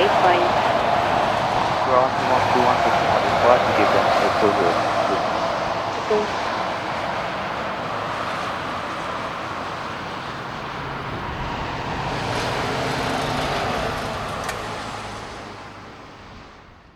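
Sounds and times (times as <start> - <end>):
jet engines idling: 0.0 - 11.6.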